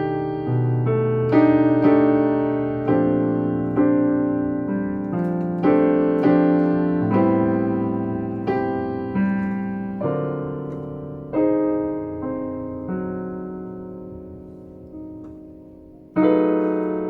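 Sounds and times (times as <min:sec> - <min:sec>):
slow jazz piano ballad: 0:00.0 - 0:17.0.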